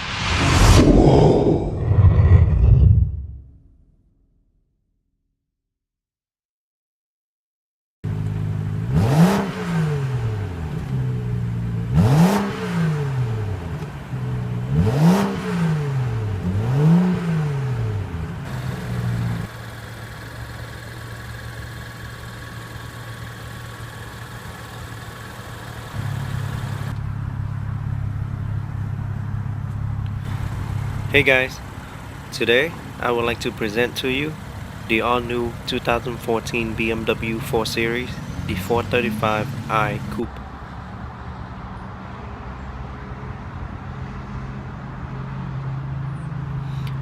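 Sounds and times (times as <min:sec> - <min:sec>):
car engine revving and idling: 0:08.1 - 0:44.3.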